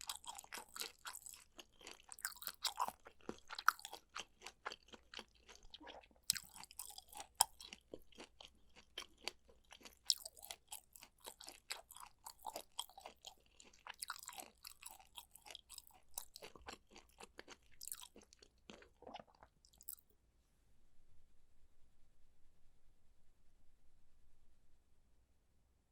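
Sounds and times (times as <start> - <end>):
crunchy food chewing: 0.0 - 20.1.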